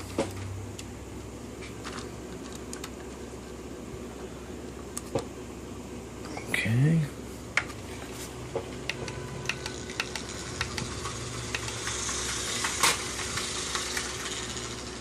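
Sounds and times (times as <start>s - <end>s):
faint steady hum: 0.0s - 15.0s
plastic toy train clicks: 9.5s - 15.0s.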